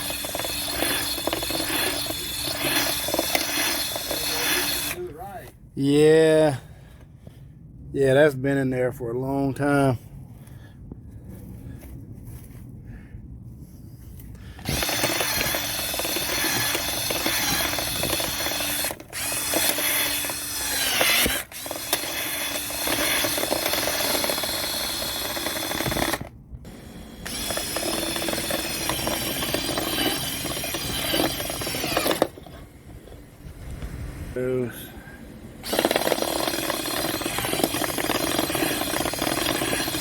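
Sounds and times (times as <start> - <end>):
power drill spinning brush in duct: 0.0 - 5.0, 14.6 - 32.7, 35.6 - 40.0.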